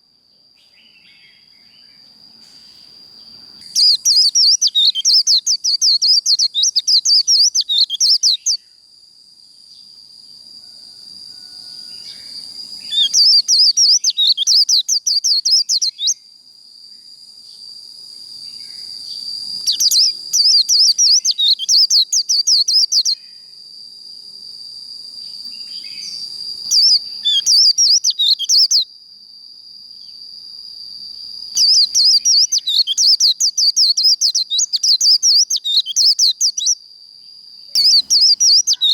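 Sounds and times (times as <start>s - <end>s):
bird twittering song: 0.6s - 8.7s, 11.9s - 16.2s, 18.5s - 23.5s, 25.4s - 28.9s, 31.5s - 36.8s, 37.6s - 38.9s.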